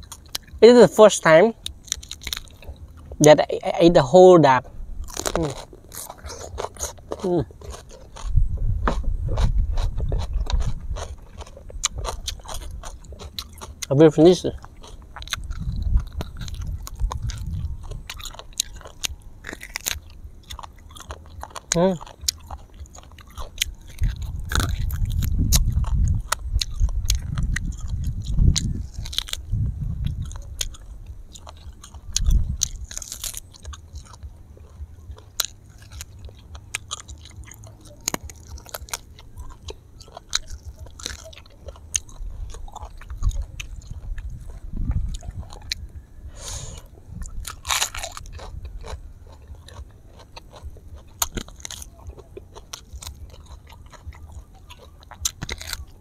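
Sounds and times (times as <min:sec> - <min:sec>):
chewing and biting meat: 0:00.0 - 0:03.8, 0:05.0 - 0:56.0
loud low thumping: 0:08.3 - 0:11.3.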